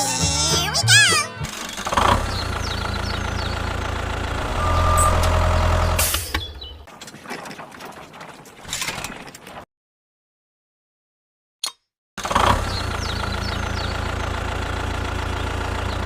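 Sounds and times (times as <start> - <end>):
mini tractor motor running: 1.4 - 6.7, 12.2 - 16.0
short burst of noise: 4.3 - 6.9.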